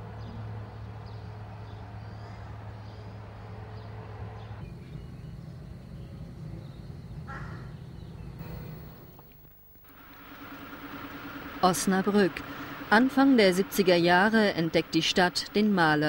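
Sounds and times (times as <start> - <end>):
steady low hum: 3.2 - 16.0.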